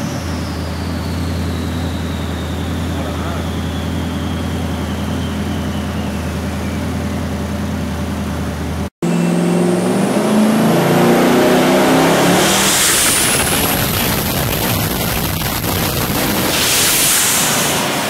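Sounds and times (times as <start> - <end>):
engine revving on a dyno: 0.0 - 6.8, 9.0 - 18.0
turbo whine: 0.0 - 18.0
loud hiss burst: 12.4 - 18.0.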